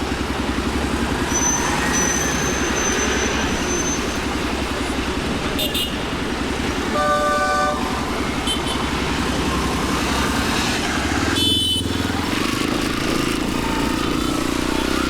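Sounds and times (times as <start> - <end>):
motorcycle engine running: 0.0 - 1.6, 7.8 - 15.0
brief shrill tone: 1.3 - 4.2
vehicle horn honking: 6.9 - 8.9, 11.3 - 12.1.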